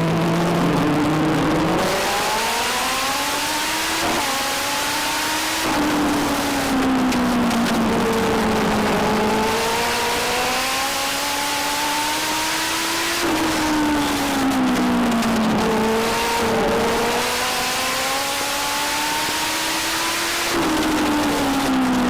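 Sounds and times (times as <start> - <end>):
race car engine revving: 0.0 - 22.0.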